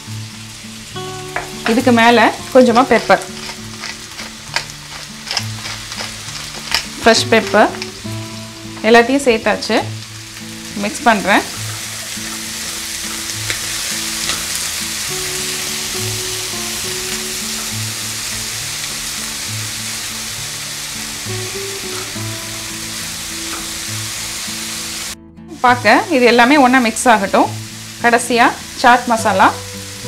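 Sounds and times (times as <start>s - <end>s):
corn sizzling in butter: 0.0s - 30.0s
spatula stirring in pan: 3.0s - 7.0s.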